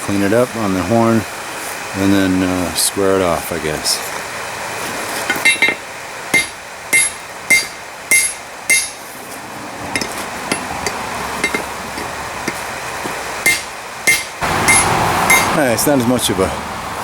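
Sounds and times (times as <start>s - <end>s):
hammer striking steel on anvil: 5.3s - 9.0s, 9.9s - 15.6s.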